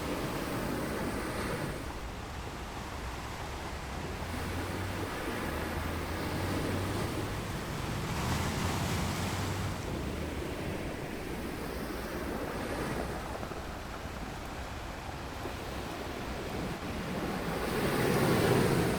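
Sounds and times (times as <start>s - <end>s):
ocean surf washing onto beach: 0.0s - 18.9s.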